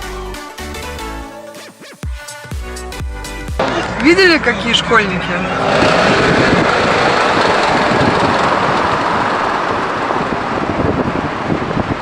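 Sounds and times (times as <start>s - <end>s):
road and traffic noise from moving car: 3.6s - 12.0s.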